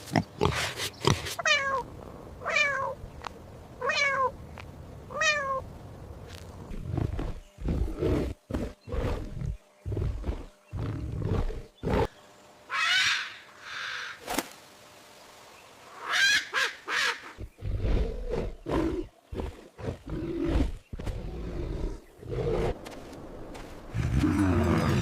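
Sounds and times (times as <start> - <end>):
big cat growling: 6.7 - 12.1, 17.4 - 22.9, 23.9 - 25.0.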